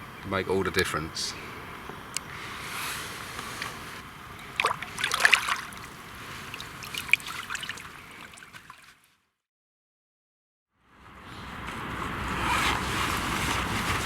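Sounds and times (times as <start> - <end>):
water splashing and trickling: 4.4 - 9.1.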